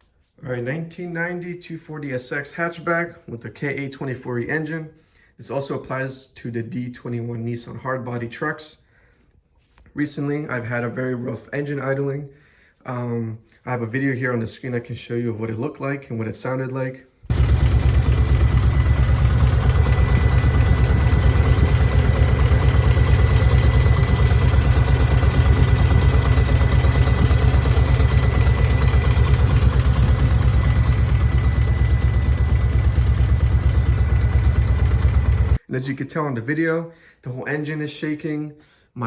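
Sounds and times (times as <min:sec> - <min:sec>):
car engine idling roughly: 0:17.3 - 0:35.6.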